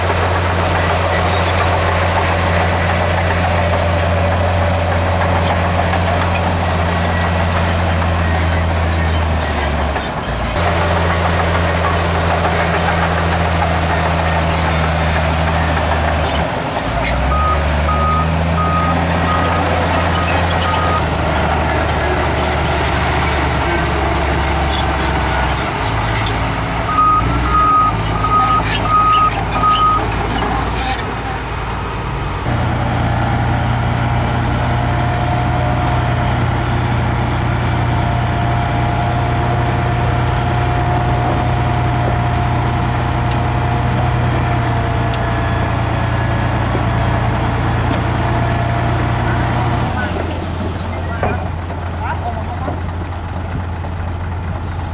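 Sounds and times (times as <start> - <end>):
heavy diesel machines running: 0.0 - 54.9
reversing alarm beeping: 17.3 - 21.2, 26.9 - 30.0.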